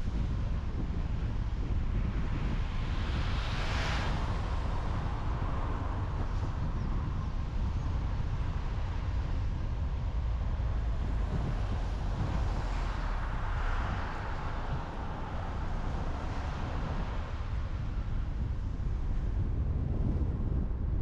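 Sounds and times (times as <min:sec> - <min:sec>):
car road noise: 0:00.0 - 0:21.0.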